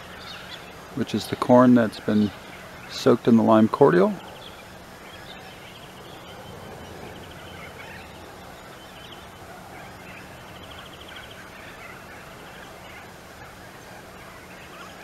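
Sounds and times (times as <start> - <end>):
bird chattering trills: 0.0 - 15.0
faint low hum: 0.0 - 15.0
wild birds calling: 0.0 - 15.0.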